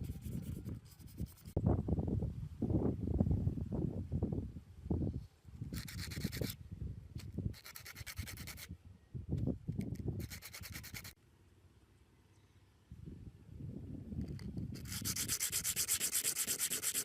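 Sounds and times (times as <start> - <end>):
sanding on hard surface: 0.0 - 1.6, 5.8 - 6.6, 7.5 - 8.7, 10.2 - 11.2, 14.8 - 17.0.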